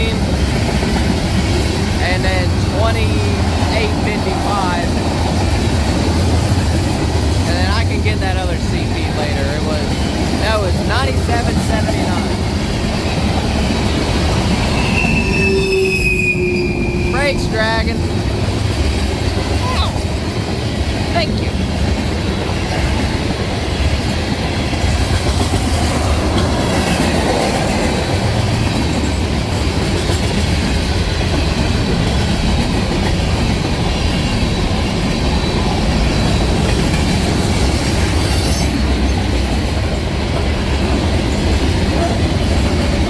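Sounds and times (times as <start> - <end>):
clickety-clack over rail joints: 0.0 - 43.0
train wheels rumbling on rails: 0.0 - 43.0
high wheel squeals: 14.6 - 17.2.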